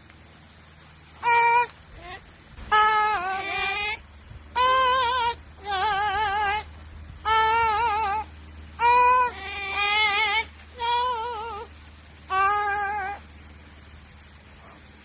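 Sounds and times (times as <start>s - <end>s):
parrot singing held notes: 1.2s - 11.7s, 12.3s - 13.2s.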